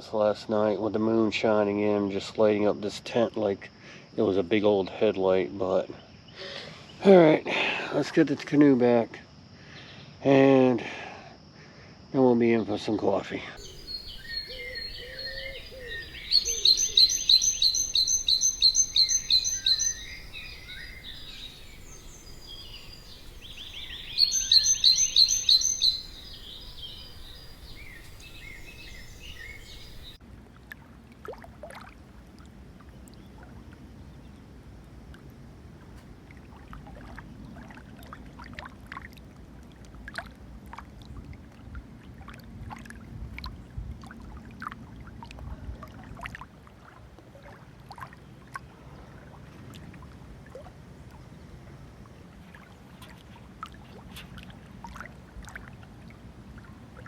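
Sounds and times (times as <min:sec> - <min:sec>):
songbird singing high notes: 0:13.6 - 0:30.2
water rushing: 0:13.6 - 0:30.2
paddle splashes and drips: 0:18.4 - 0:34.0, 0:34.8 - 0:57.0.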